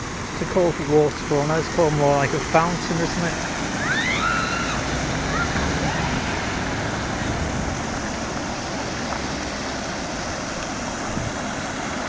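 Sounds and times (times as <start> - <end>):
fountain water rushing: 0.0 - 12.0
traffic rumble: 0.0 - 12.0.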